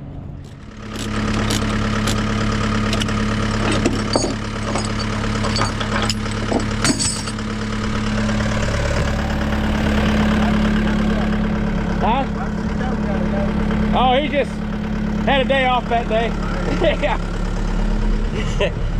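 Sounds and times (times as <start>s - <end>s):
diesel truck engine idling: 0.0s - 18.9s
metallic clicks and clanks: 2.9s - 7.4s
deep rumble: 2.9s - 15.4s.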